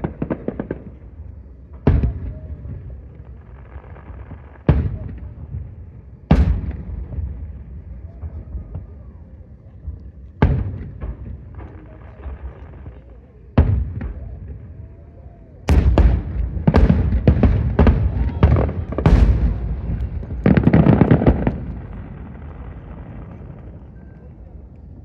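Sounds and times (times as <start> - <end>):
fireworks bangs: 0.0 - 9.3, 10.4 - 25.0
fireworks crackling: 15.6 - 25.0.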